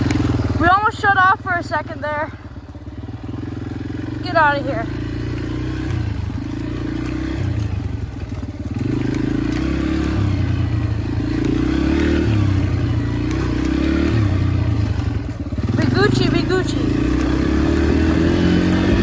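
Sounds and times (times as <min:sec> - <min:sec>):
dirt bike engine revving: 0:00.0 - 0:19.0
bike clattering over rough ground: 0:04.8 - 0:19.0.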